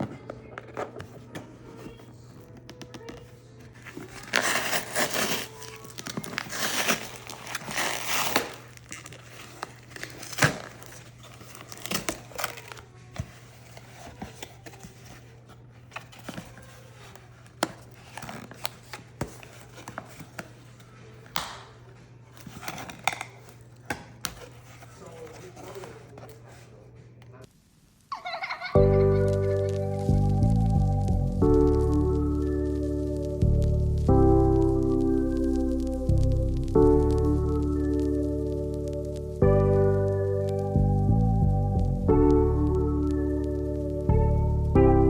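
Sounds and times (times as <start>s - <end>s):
packaging crinkling and tearing: 3.2s - 26.6s.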